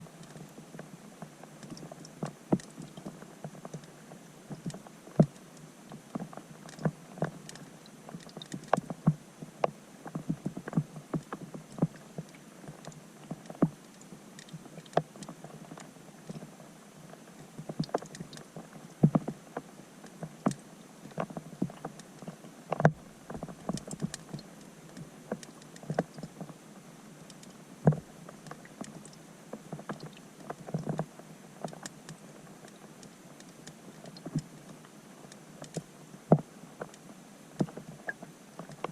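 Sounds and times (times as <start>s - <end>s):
faint steady hiss: 0.0s - 38.9s
raindrops plinking underwater: 1.5s - 16.5s, 20.0s - 26.5s.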